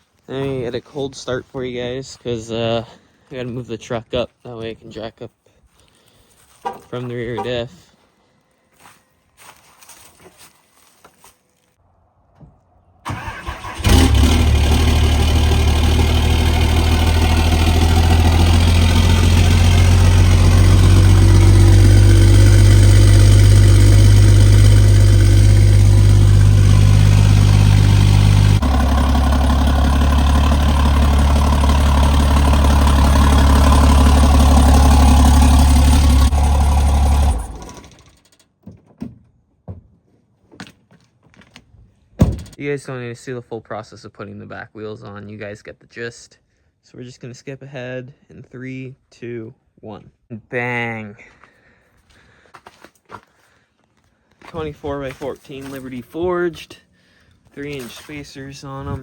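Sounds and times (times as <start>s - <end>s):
diesel engine starting and running: 13.0s - 38.5s.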